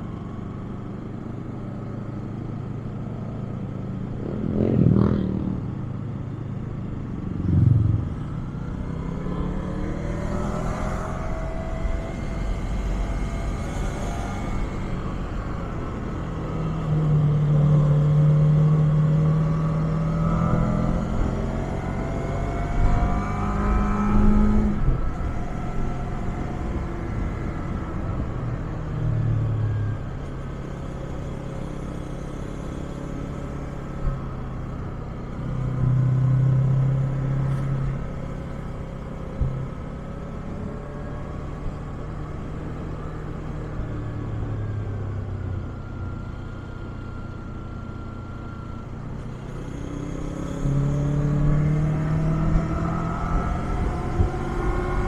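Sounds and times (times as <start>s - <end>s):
motorcycle engine revving: 3.2s - 29.0s, 45.6s - 55.0s.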